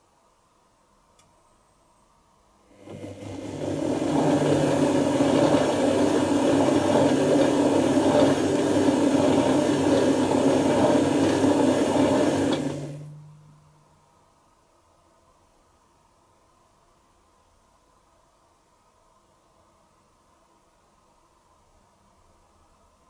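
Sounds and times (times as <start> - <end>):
washing machine churning: 2.7 - 13.4.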